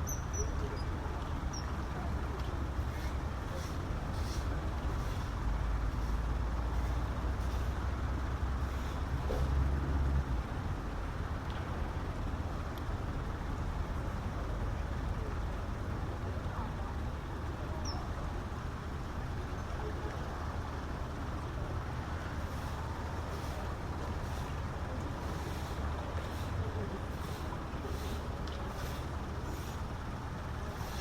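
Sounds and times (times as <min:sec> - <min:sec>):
faint high chirp: 0:00.0 - 0:00.9
distant traffic rumble: 0:00.0 - 0:31.0.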